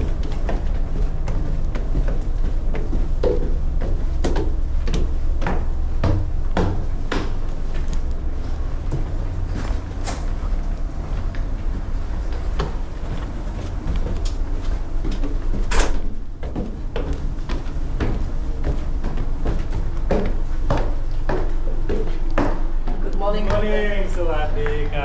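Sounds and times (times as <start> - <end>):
knocks and clatter: 0.0 - 24.0
ship engine rumbling: 0.0 - 25.0.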